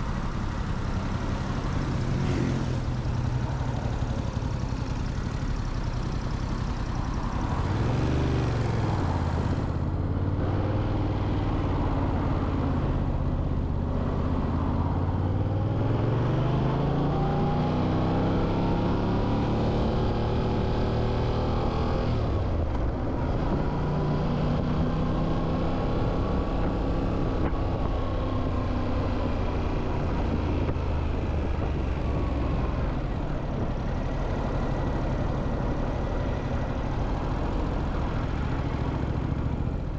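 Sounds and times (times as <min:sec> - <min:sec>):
wind and road noise: 0:00.0 - 0:39.9
motorcycle engine revving: 0:01.7 - 0:03.1.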